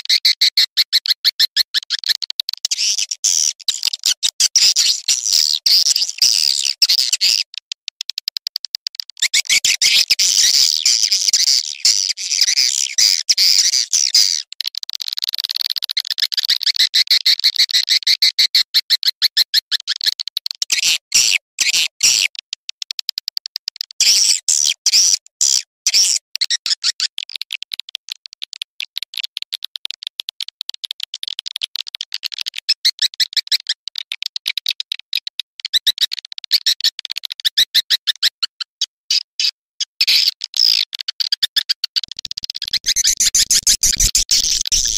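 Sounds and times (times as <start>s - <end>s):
high chattering bird twitter: 9.3s - 14.5s, 42.6s - 44.9s.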